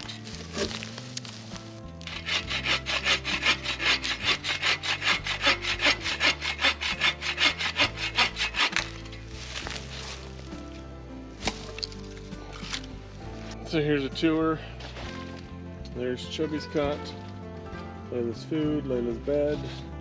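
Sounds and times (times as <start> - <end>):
bow saw cutting wood: 0.0 - 1.0, 2.0 - 10.7.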